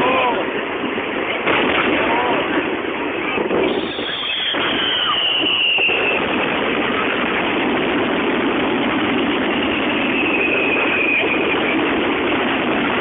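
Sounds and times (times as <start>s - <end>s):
fireworks barrage: 0.0s - 13.0s
faint falling whistle: 3.6s - 6.2s, 9.6s - 11.8s.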